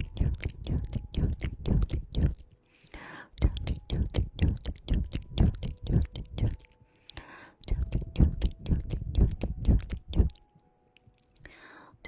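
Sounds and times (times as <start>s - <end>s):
wet tongue clicks: 0.0s - 11.5s.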